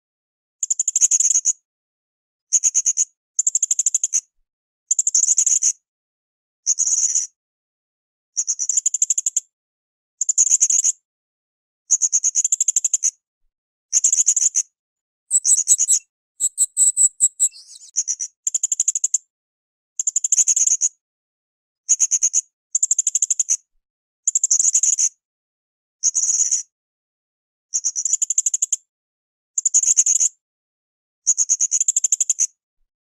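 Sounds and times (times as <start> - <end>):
parrot shrill trills: 15.3 - 17.9
parrot twittering: 15.3 - 17.9.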